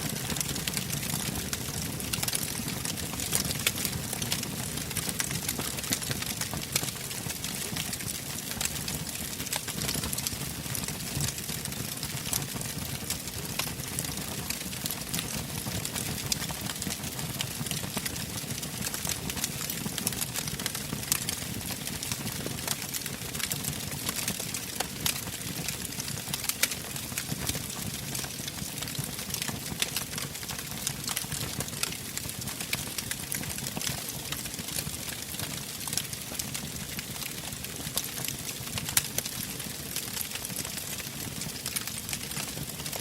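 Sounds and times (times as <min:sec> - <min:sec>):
wood fire crackling and popping: 0:00.0 - 0:43.0.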